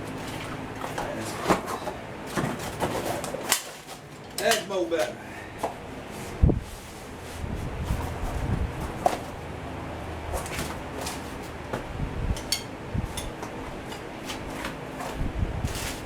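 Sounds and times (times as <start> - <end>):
hand tools clinking on metal: 4.3 - 5.2.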